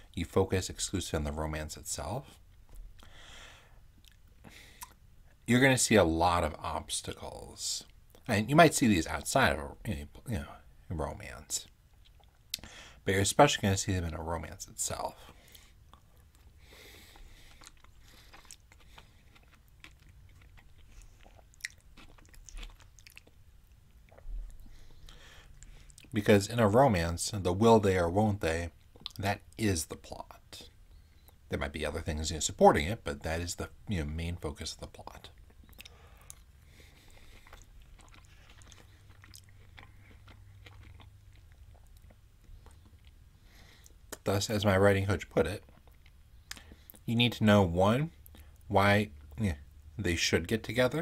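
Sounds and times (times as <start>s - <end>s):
close-up chewing: 11.9s - 12.7s, 15.3s - 26.2s, 35.2s - 44.2s, 45.6s - 47.1s
wet mouth clicks: 45.7s - 47.0s.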